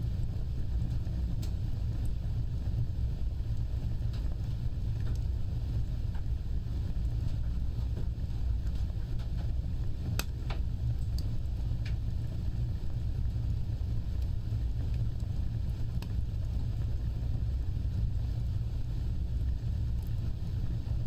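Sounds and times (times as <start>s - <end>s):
fire crackles and pops: 0.0s - 21.0s
flames roaring: 0.0s - 21.0s.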